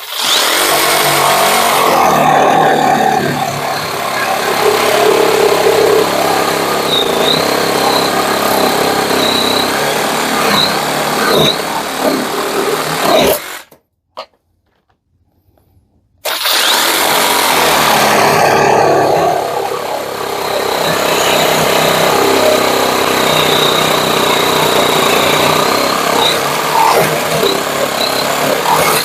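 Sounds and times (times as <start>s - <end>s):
sabre saw cutting wood: 0.0s - 13.7s, 16.3s - 29.0s.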